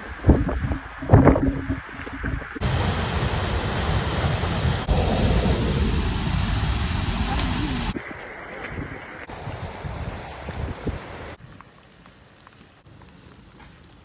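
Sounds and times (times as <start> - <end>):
waterfall rushing: 2.6 - 8.0, 9.3 - 11.4.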